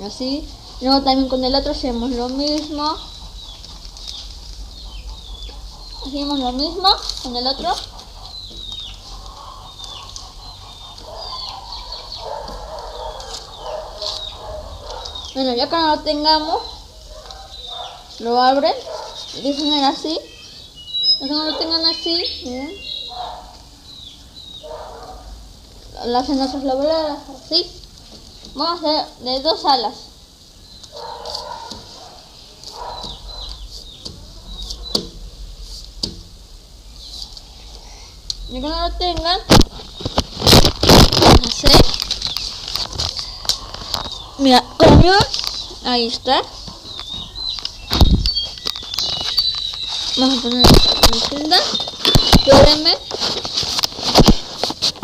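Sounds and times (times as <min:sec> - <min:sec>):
birds chirping: 0:00.0 - 0:55.0
paper rustling: 0:12.2 - 0:15.2, 0:39.5 - 0:44.1, 0:48.0 - 0:55.0.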